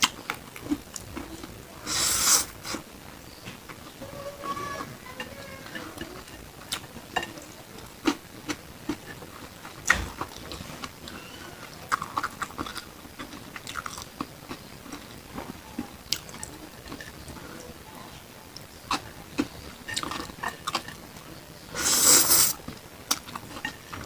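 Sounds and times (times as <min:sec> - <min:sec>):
close chewing with mouth clicks: 0:00.0 - 0:01.6, 0:08.0 - 0:15.2, 0:18.5 - 0:21.0.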